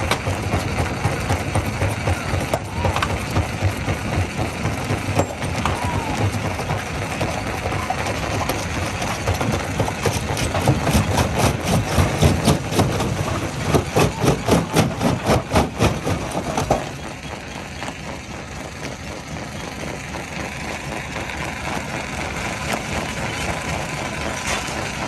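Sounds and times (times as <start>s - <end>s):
rhythmic pounding strokes: 0.0s - 17.3s
heavy diesel machinery running: 0.0s - 25.0s.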